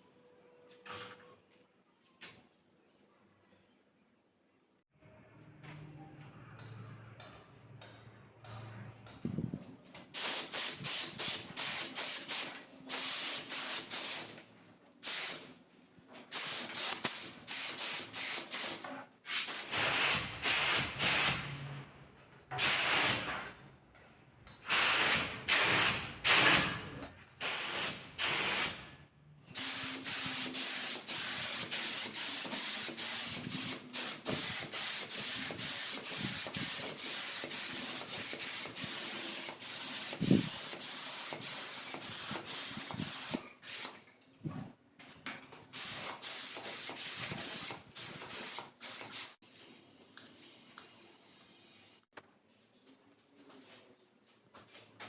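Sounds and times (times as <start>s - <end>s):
paint spray gun hissing: 10.2s - 14.3s, 16.3s - 18.8s, 19.5s - 21.6s, 24.7s - 26.7s, 27.4s - 28.9s, 29.6s - 44.0s, 45.8s - 49.4s.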